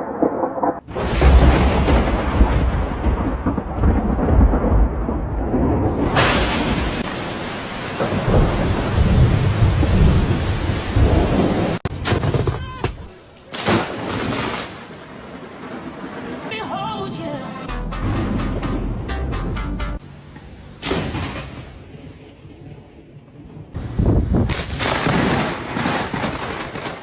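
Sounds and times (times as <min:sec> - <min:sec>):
thunder rumbling: 0:00.0 - 0:12.6, 0:13.7 - 0:19.6, 0:20.9 - 0:27.0
heavy rain: 0:00.8 - 0:11.9
loud burst of noise: 0:05.9 - 0:11.8.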